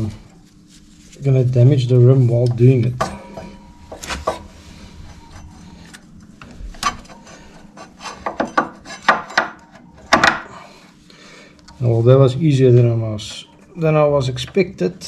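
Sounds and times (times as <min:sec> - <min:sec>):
metal scraping and rubbing: 0:03.2 - 0:09.9.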